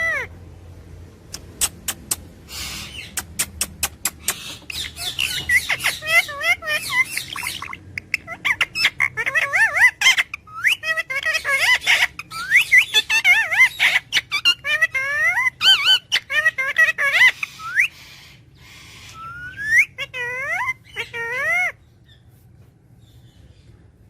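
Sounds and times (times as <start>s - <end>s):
parrot chattering: 0.0s - 0.4s, 1.2s - 22.2s
parrot clicks: 1.3s - 2.3s, 3.1s - 4.8s.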